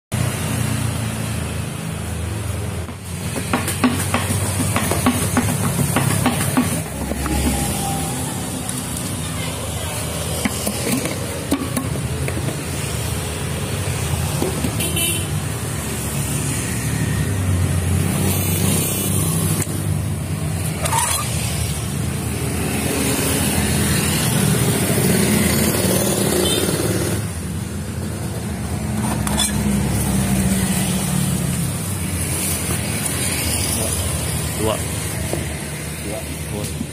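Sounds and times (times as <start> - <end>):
vehicle engines running: 0.2 - 36.9
car horn toots: 14.8 - 15.4.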